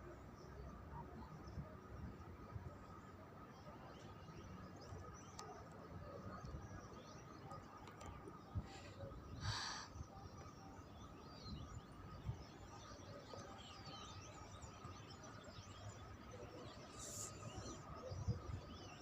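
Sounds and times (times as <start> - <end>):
small birds chirping: 3.0 - 19.0
breathy noise near microphone: 8.3 - 10.2, 16.6 - 18.0.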